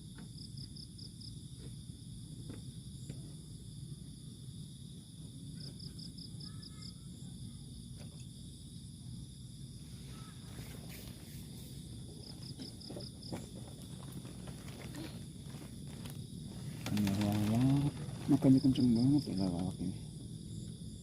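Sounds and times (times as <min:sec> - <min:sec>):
crickets trilling: 0:00.0 - 0:21.0
insect chirps: 0:00.0 - 0:21.0.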